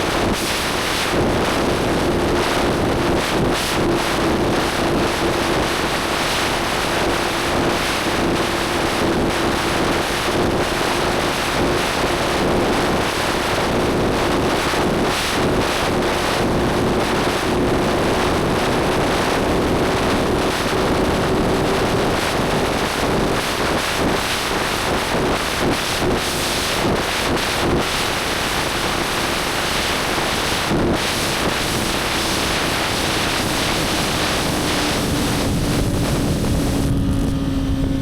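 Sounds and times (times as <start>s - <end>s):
wind noise on microphone: 0.0s - 38.0s
motorcycle engine drone: 28.9s - 38.0s.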